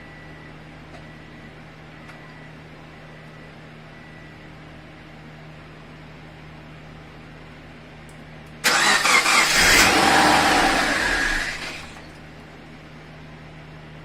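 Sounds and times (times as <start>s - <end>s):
car engine starting and running: 8.6s - 12.2s.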